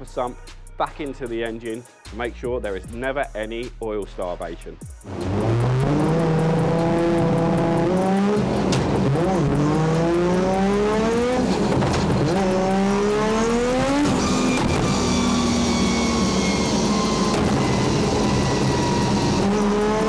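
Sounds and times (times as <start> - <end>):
car engine accelerating hard: 5.1 - 20.0.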